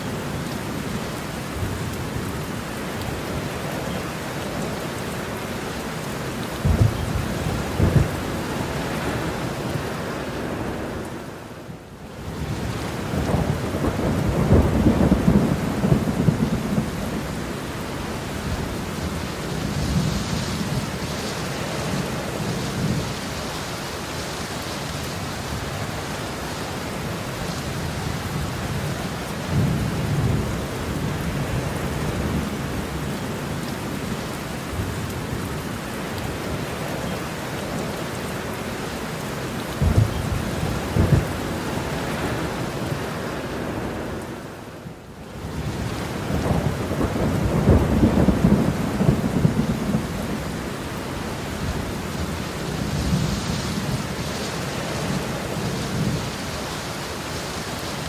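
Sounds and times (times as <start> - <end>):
heavy rain: 0.0 - 58.0
thunder rumbling: 6.6 - 9.9, 12.5 - 21.0, 39.7 - 44.1, 45.4 - 54.4.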